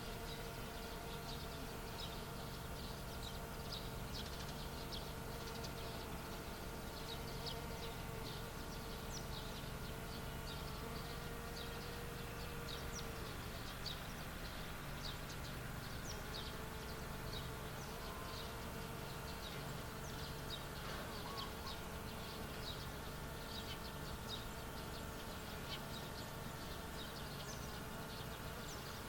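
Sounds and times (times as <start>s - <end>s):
small birds chirping: 0.0s - 29.0s
steady hum: 0.0s - 29.0s.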